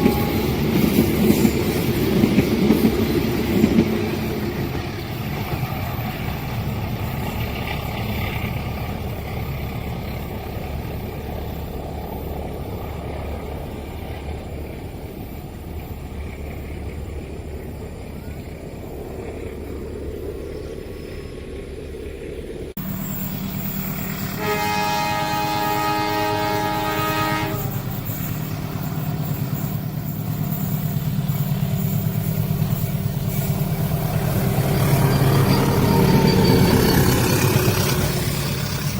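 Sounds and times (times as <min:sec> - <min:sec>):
locomotive horn blast: 0:00.0 - 0:00.9, 0:24.2 - 0:28.1, 0:35.1 - 0:36.9
locomotive engine rumble: 0:00.0 - 0:38.9
train rumbling and clattering: 0:00.0 - 0:38.9.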